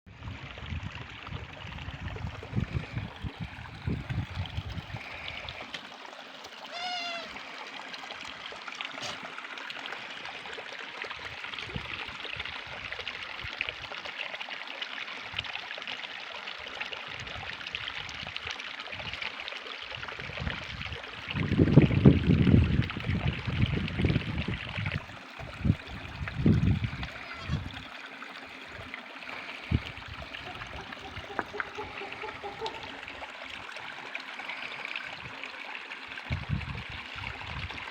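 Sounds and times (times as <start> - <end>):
stream water flowing: 0.1 - 37.9
short high call: 6.7 - 7.4.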